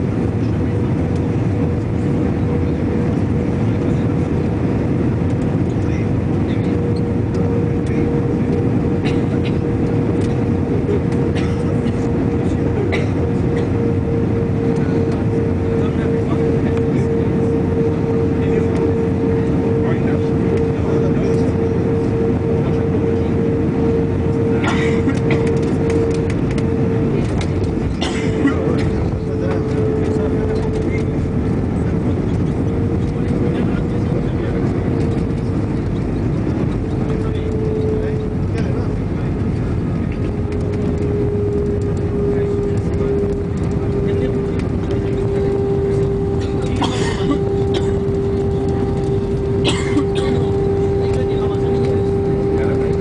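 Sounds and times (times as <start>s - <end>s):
airliner rumble: 0.0s - 53.0s
constant hum: 0.0s - 53.0s
light rattles and clicks: 24.3s - 53.0s.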